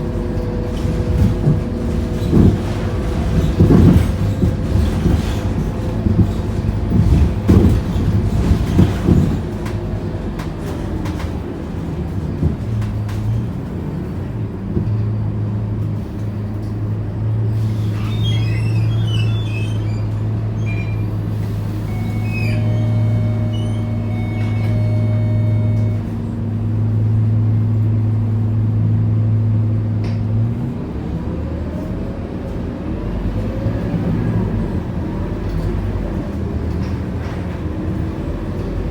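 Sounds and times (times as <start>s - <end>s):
bus diesel engine idling: 0.0s - 38.9s
bus engine revving up: 0.0s - 38.9s
knocks and rattles: 0.4s - 13.5s.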